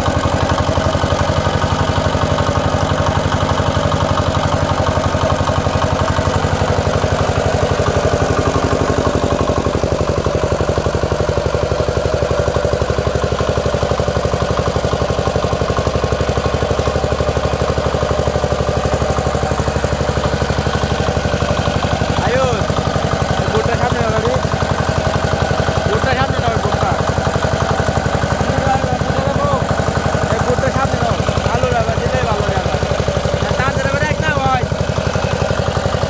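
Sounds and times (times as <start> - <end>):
diesel generator running: 0.0 - 36.0.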